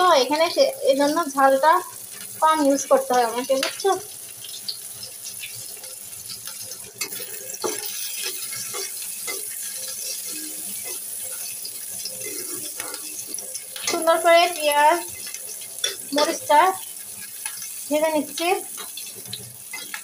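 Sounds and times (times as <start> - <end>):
onion sizzling in hot oil: 0.0 - 20.0
spatula scraping a pan: 5.4 - 20.0.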